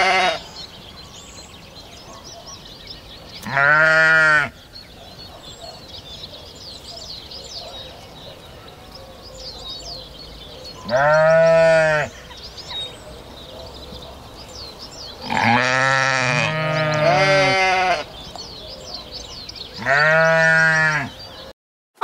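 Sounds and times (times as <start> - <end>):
sheep bleating: 0.0 - 0.5, 3.4 - 4.5, 10.8 - 12.2, 15.2 - 18.1, 19.8 - 21.2.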